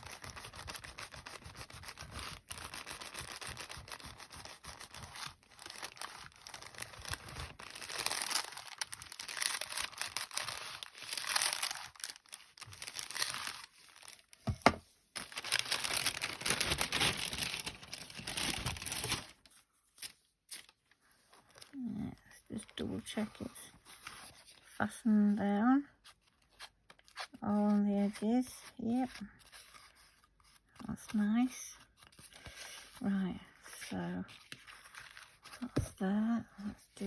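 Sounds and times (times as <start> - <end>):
paper rustling and crinkling: 0.0 - 21.8, 33.6 - 36.0.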